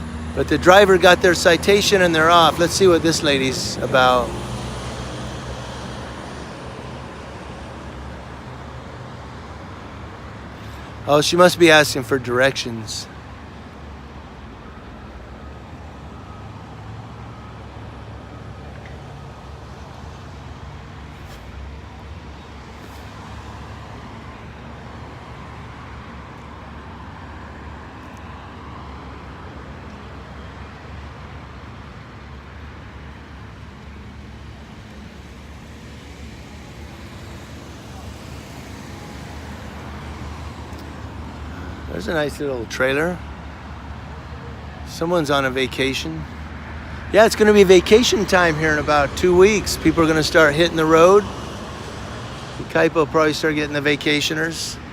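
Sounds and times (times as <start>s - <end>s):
cars passing by: 0.0s - 54.9s
traffic rumble: 0.0s - 54.9s.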